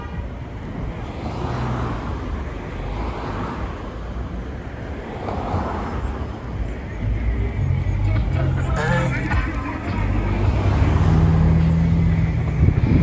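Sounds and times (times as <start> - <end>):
vehicles passing: 0.0 - 13.0
low engine rumble: 6.1 - 13.0.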